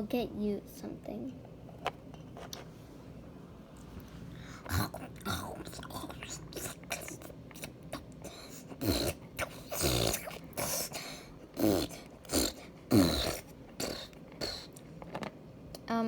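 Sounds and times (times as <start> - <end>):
child making growly eating noises: 4.5 - 14.8.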